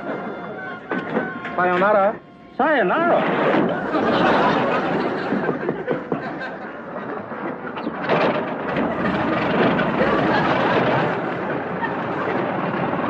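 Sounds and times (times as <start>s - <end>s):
audience laughter: 3.0s - 13.0s.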